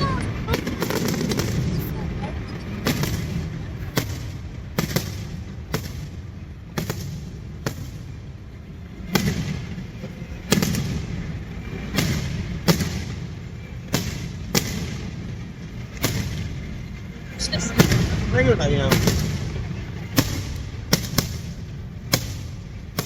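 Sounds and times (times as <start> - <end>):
fireworks bangs: 0.0 - 8.3, 9.0 - 23.0
low rumble: 16.6 - 23.0.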